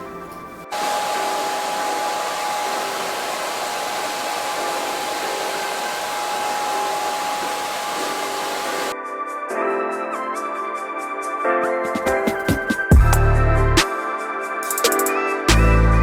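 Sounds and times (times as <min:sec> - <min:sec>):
hair dryer blowing: 0:00.7 - 0:09.0.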